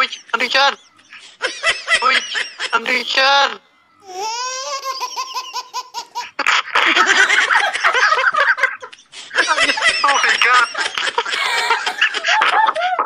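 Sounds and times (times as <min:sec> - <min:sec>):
adults laughing: 0:00.6 - 0:03.0, 0:04.8 - 0:13.0
baby giggling: 0:04.0 - 0:07.5, 0:09.7 - 0:13.0.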